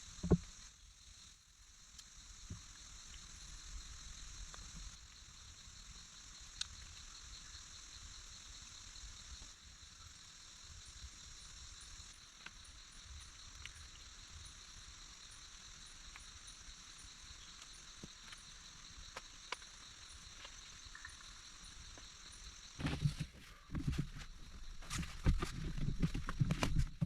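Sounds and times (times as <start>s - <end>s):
small clicks and ticks: 1.8s - 3.4s, 6.4s - 7.1s, 12.1s - 14.1s, 15.3s - 22.4s.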